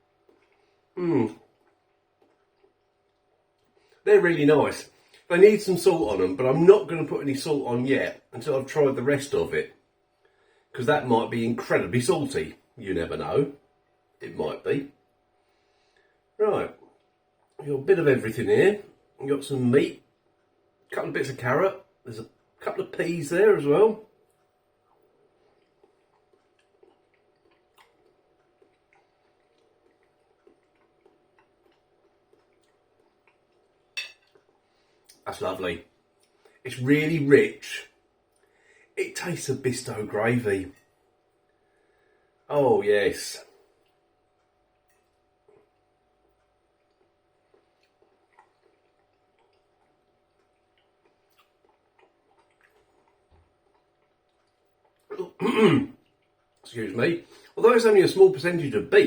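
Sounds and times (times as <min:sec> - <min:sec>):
man chewing food: 0:00.0 - 0:04.0, 0:15.1 - 0:17.6, 0:24.0 - 0:35.2, 0:35.9 - 0:36.6, 0:38.0 - 0:39.0, 0:43.5 - 0:57.6.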